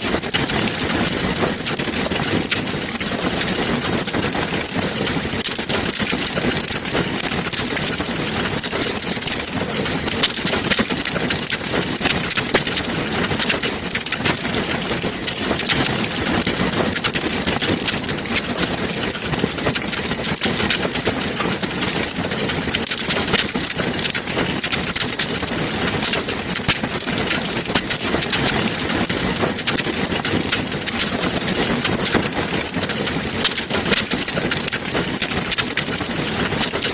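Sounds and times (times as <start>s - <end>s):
wood fire crackling: 0.0s - 36.9s.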